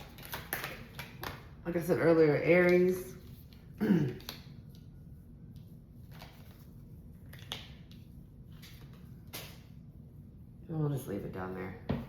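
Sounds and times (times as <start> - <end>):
cards rustling and tapping: 0.0 - 1.5
low room hum: 0.0 - 12.0.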